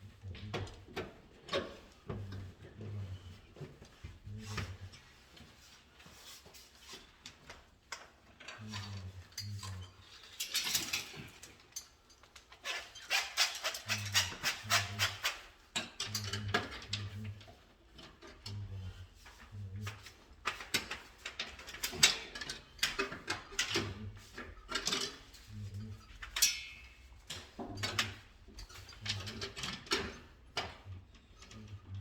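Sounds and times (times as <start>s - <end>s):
clicks and snaps of wiring work: 7.2s - 17.4s, 26.2s - 32.0s.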